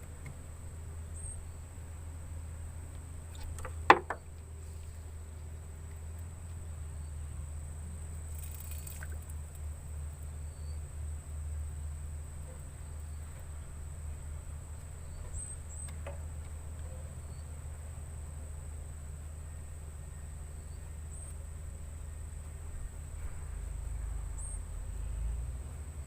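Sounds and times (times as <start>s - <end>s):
low steady rumble: 0.0s - 26.0s
rustle: 0.0s - 26.0s
insect calling: 8.2s - 9.5s.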